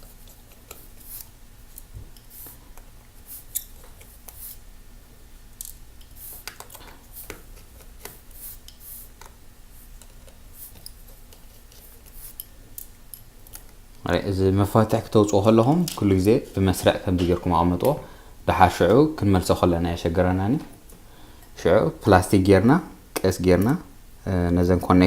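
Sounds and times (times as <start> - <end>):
small tools clicking and scraping: 0.0 - 4.5, 10.0 - 13.8.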